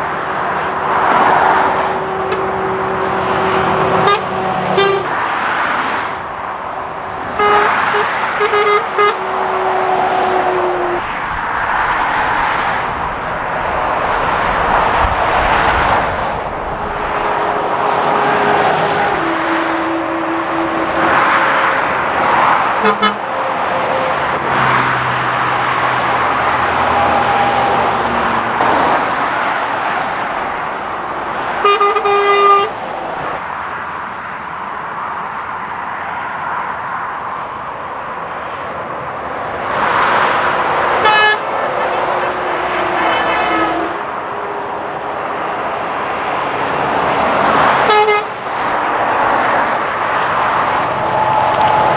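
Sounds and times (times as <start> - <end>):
road traffic passing at speed: 0.0 - 51.9
vehicle horn toot: 1.2 - 5.6, 7.2 - 25.0, 31.5 - 32.8, 41.0 - 44.8, 47.5 - 48.4.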